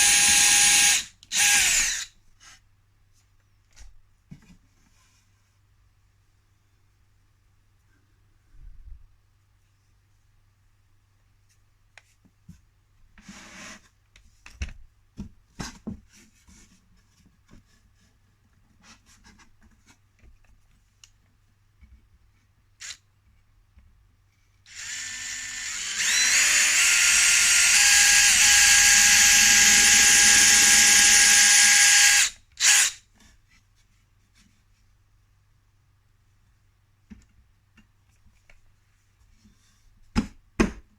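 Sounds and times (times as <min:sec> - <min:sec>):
power drill whine: 0:00.0 - 0:02.1, 0:24.7 - 0:33.0
knocks and clicks handling wood: 0:37.0 - 0:38.7, 0:40.0 - 0:40.9.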